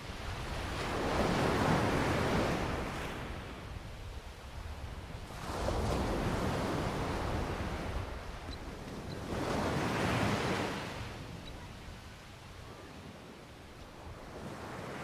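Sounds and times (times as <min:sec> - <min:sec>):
ocean waves breaking: 0:04.9 - 0:13.4.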